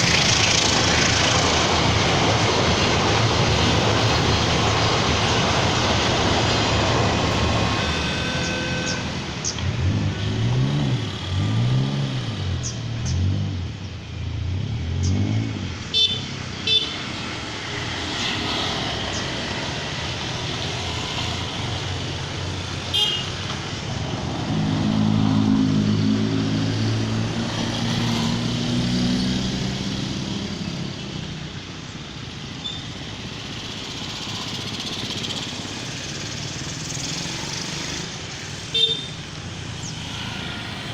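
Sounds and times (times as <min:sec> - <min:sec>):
heavy engine: 0:00.0 - 0:40.9
motorcycles and cars passing: 0:00.0 - 0:40.9
short horn beeps: 0:07.3 - 0:09.5.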